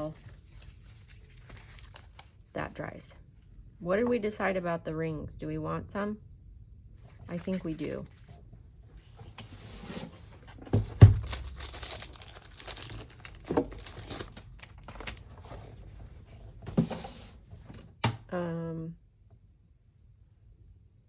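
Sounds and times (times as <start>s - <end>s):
paper rustling and crinkling: 0.0s - 2.5s, 7.0s - 17.4s.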